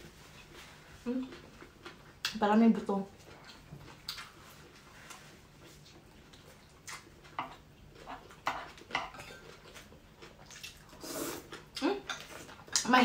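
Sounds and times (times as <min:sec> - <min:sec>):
chewing: 0:03.2 - 0:12.9.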